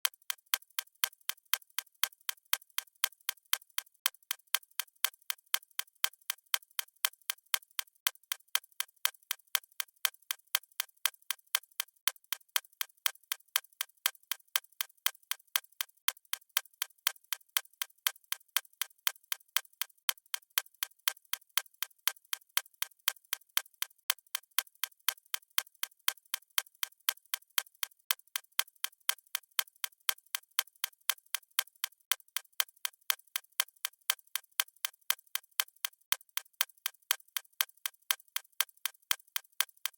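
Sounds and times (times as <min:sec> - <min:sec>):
clock ticking: 0:32.1 - 0:39.9.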